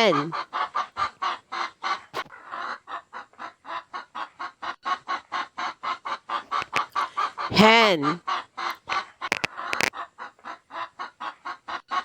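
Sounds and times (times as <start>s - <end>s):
hen clucking: 0.0s - 12.0s.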